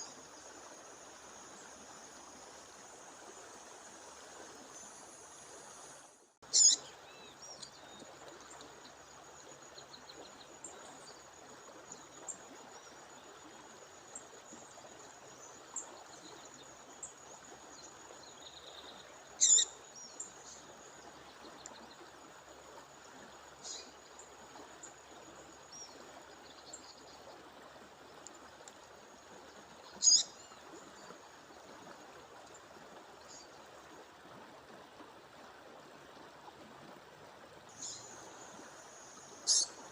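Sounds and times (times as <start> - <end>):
songbird sharp calls: 6.5 - 6.9, 19.4 - 19.8, 30.0 - 30.4, 39.4 - 39.8
faint bird chirps: 6.5 - 8.0, 18.7 - 20.2, 29.9 - 30.6, 39.4 - 39.8.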